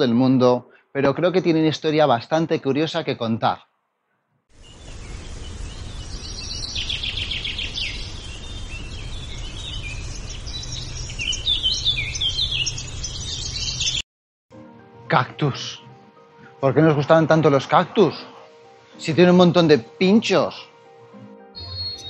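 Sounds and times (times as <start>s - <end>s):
birds chirping and singing: 4.7s - 14.0s, 21.6s - 22.0s.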